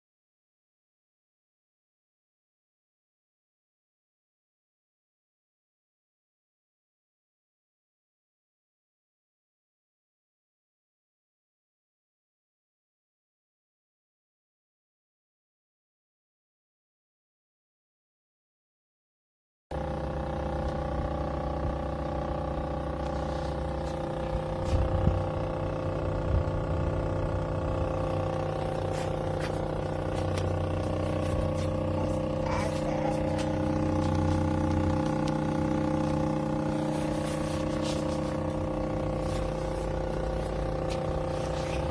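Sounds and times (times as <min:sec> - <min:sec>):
engine running steadily: 0:19.7 - 0:41.9.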